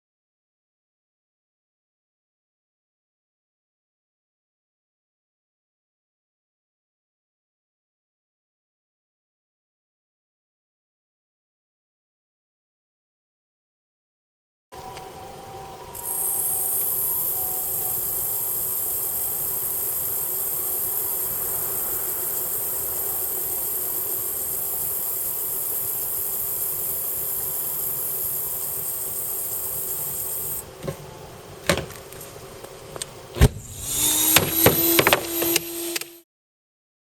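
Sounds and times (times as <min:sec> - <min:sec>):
gas hissing out: 0:15.9 - 0:30.7, 0:33.4 - 0:36.2.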